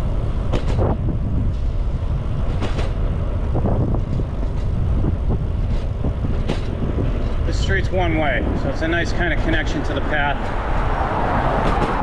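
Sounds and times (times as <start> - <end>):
road noise rumble: 0.0 - 12.0
wind buffeting microphone: 0.0 - 12.0
short knocks and rattles: 0.5 - 1.0, 2.5 - 3.0, 5.6 - 7.4.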